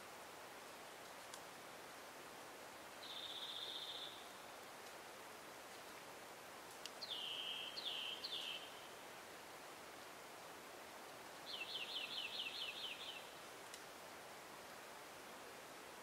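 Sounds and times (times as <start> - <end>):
faint forest hiss: 0.0 - 16.0
songbird singing: 3.0 - 4.5, 6.8 - 9.0, 11.4 - 13.5.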